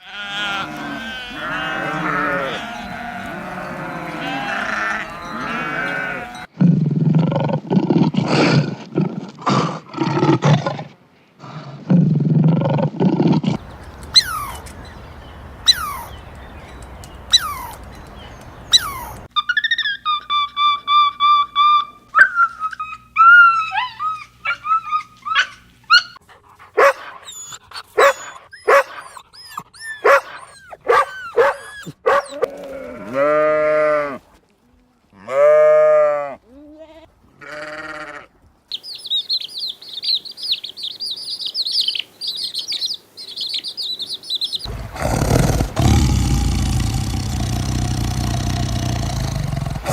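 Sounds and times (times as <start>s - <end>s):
rising and falling animal calls: 0.0s - 6.5s, 14.1s - 15.0s, 15.6s - 16.3s, 17.3s - 17.9s, 18.7s - 26.2s, 40.9s - 49.9s
whistling animal call: 15.7s - 16.2s.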